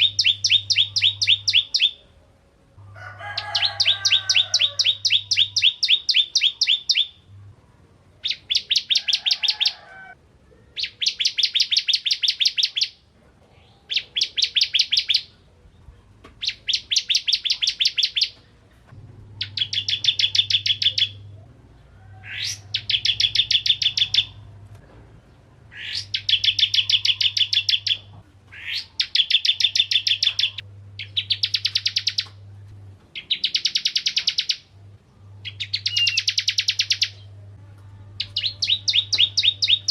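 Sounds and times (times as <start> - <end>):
bird singing rattling trills: 0.0 - 2.0, 3.4 - 7.3, 10.8 - 13.0, 16.4 - 18.4, 19.4 - 21.3, 22.2 - 24.4, 25.7 - 32.3, 33.2 - 34.7, 35.4 - 37.3, 38.2 - 39.9
faint low hum: 0.0 - 12.3, 12.9 - 39.9.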